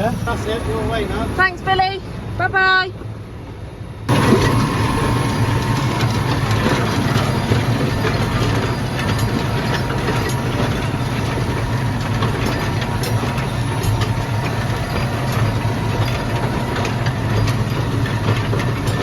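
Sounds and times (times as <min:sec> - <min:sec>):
tractor engine running: 0:04.1 - 0:19.0.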